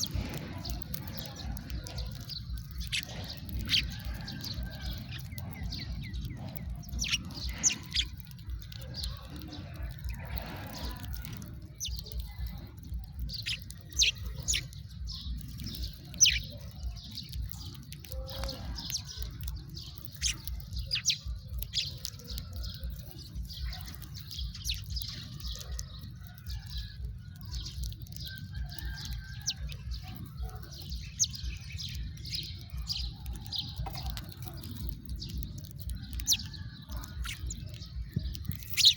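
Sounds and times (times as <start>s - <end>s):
sparrows chirping: 0.0s - 38.9s.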